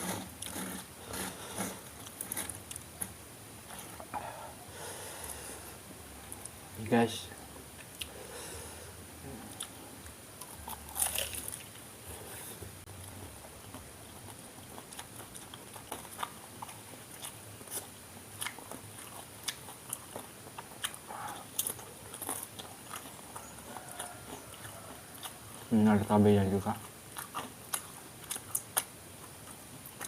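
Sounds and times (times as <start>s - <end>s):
crunching fried snacks: 0.0s - 3.1s, 10.4s - 11.8s, 26.7s - 30.0s.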